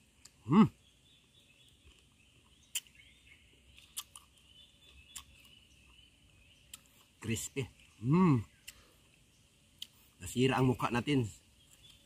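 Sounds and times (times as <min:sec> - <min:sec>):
crunchy mango being chewed: 0:01.3 - 0:10.2, 0:11.6 - 0:12.0.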